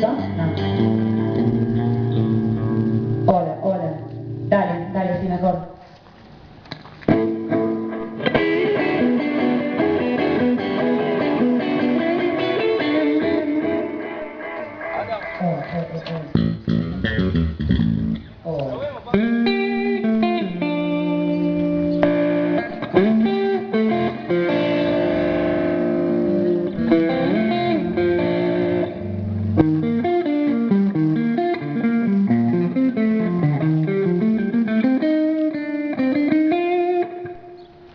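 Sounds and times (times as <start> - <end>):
guitar notes with bends: 0.0 - 5.0, 7.1 - 37.9.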